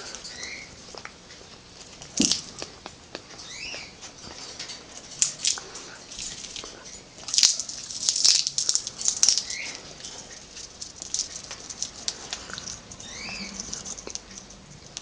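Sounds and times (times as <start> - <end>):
parrot chirping: 0.2 - 0.8, 3.4 - 4.0, 12.5 - 14.6
parrot cracking a peanut: 2.0 - 3.3, 4.6 - 15.0.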